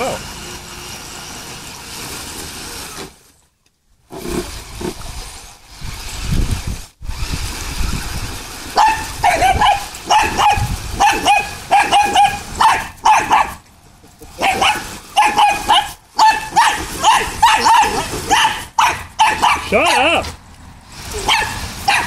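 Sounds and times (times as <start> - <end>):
dog barking: 8.8 - 13.6, 14.4 - 20.1, 21.2 - 22.0.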